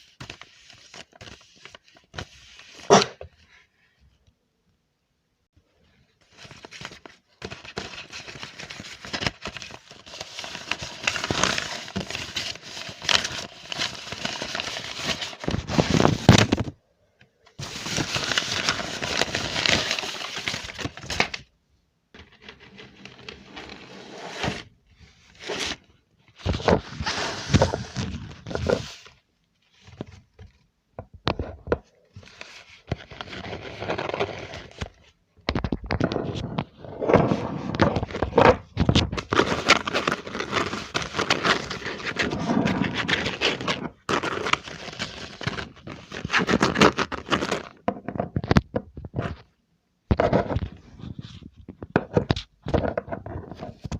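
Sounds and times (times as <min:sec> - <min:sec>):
scratchy handling sounds: 0:22.2 - 0:30.6.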